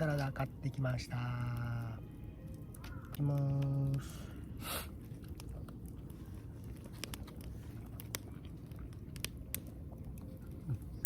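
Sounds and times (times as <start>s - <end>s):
soft chewing: 2.4s - 11.0s.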